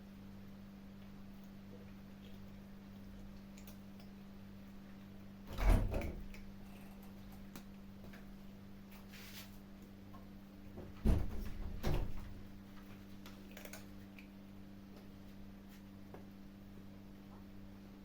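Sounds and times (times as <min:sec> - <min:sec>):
steady low hum: 0:00.0 - 0:18.0
kittens chewing food: 0:01.0 - 0:05.2, 0:12.8 - 0:15.2.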